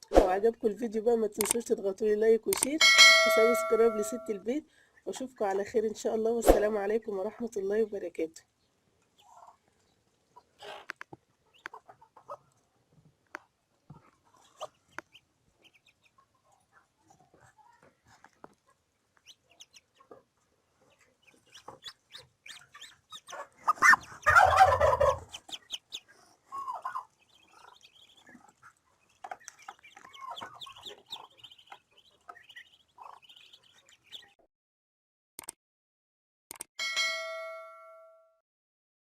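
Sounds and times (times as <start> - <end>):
poultry clucking: 9.2 - 9.7, 10.4 - 12.6, 13.9 - 34.4.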